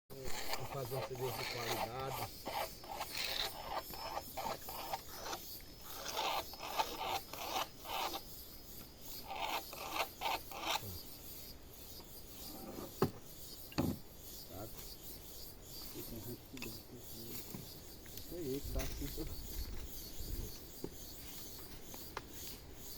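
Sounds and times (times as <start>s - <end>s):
rasping strokes on wood: 0.1s - 11.4s.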